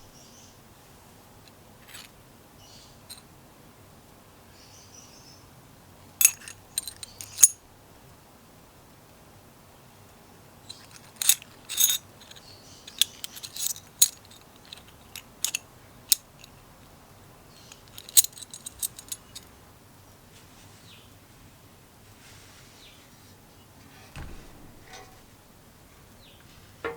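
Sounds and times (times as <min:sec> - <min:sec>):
small metal parts clinking: 0:01.8 - 0:02.1, 0:06.2 - 0:07.6, 0:10.7 - 0:16.6, 0:17.5 - 0:19.6.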